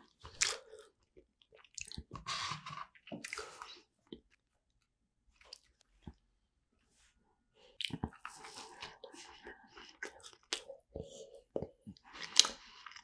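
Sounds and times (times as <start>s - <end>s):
close chewing mouth noise: 7.8s - 13.0s.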